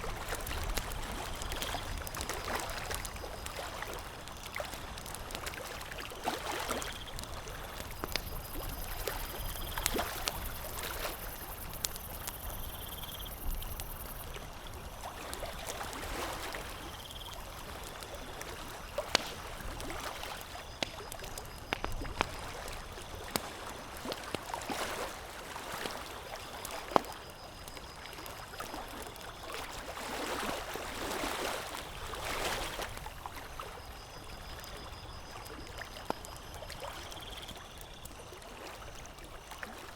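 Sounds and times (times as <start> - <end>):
water lapping: 0.0 - 12.2, 14.2 - 39.9
campfire crackling and popping: 0.0 - 25.3, 25.9 - 29.8.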